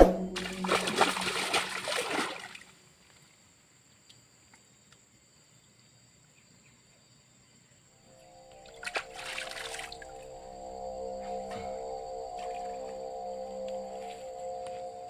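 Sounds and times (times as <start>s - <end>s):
water splashing and sloshing: 0.0s - 3.2s, 8.5s - 10.5s, 11.1s - 14.6s.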